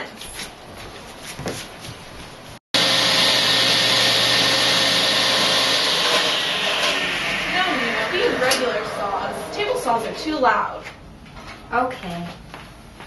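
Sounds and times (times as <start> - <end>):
table saw running: 2.8 - 11.0.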